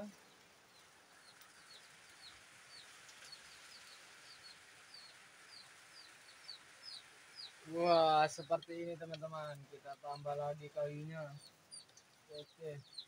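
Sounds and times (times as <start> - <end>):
soft hiss: 0.0 - 13.0
bird peeping: 8.4 - 13.0.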